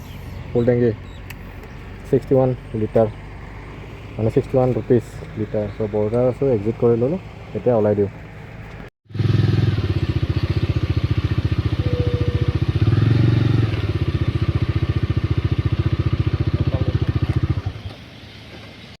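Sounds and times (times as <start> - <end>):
motorcycle engine revving: 0.0 - 7.6, 8.2 - 18.5.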